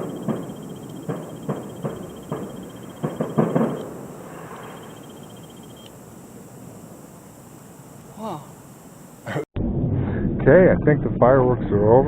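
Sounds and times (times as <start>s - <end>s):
distant fireworks booming: 0.0s - 7.0s
rumble of fireworks: 0.0s - 7.0s.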